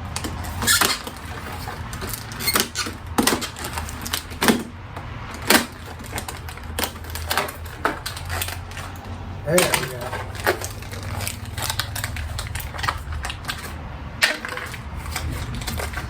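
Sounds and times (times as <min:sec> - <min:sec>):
plastic packaging cracking open: 0:05.3 - 0:16.0.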